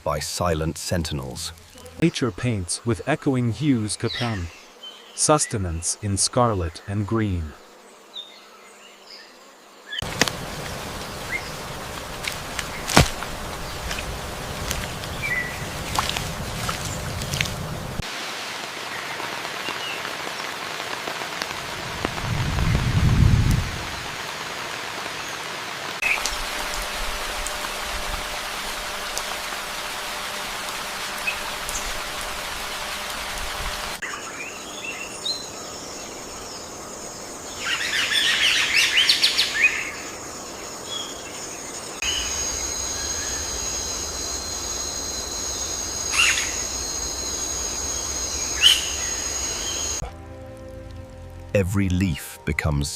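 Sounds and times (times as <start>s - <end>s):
rain-like hiss: 0.0s - 52.9s
birds chirping: 0.1s - 18.0s, 33.8s - 50.1s.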